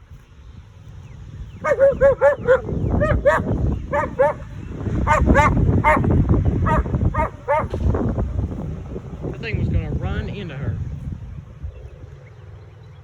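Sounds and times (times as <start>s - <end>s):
low rumbling noise: 0.0s - 13.0s
dog barking: 1.6s - 7.8s.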